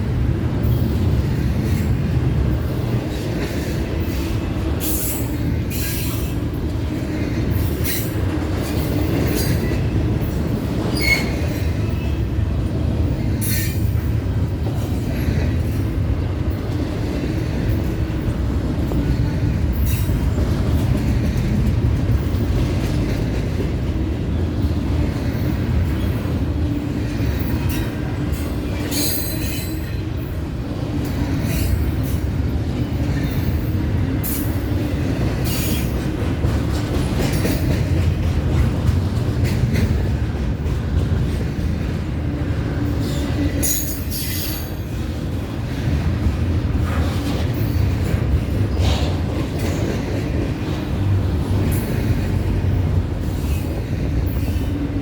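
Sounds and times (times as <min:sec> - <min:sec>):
train clatter: 0:00.0 - 0:55.0
train wheels rumbling on rail: 0:00.0 - 0:55.0
wheel squeals: 0:10.9 - 0:12.1.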